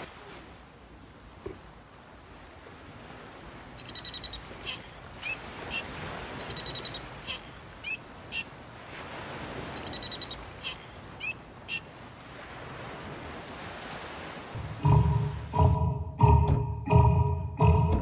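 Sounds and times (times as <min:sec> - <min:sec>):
surf: 0:00.0 - 0:15.8
bird calls chattering trill: 0:03.8 - 0:08.5.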